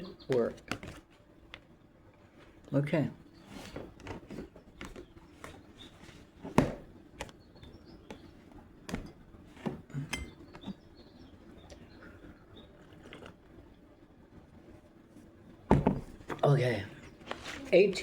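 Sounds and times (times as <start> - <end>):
cards clicking and tapping: 0.3 - 1.6.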